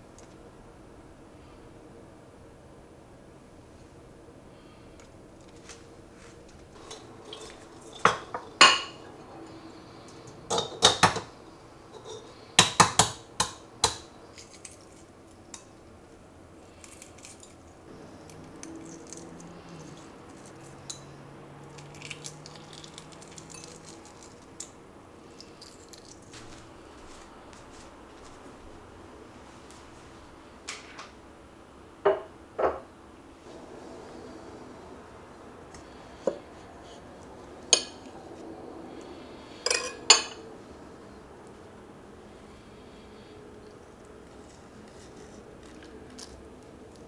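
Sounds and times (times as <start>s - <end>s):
cutlery and dishes clinking: 6.8s - 11.3s, 11.9s - 15.0s, 21.8s - 24.4s, 39.7s - 40.4s.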